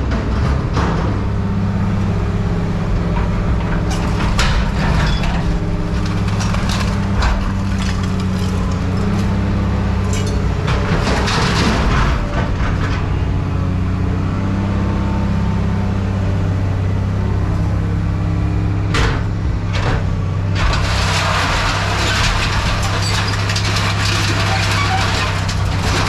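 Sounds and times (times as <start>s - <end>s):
heavy machine engine humming: 0.0s - 26.0s
harsh clatter: 3.1s - 13.2s, 18.9s - 26.0s.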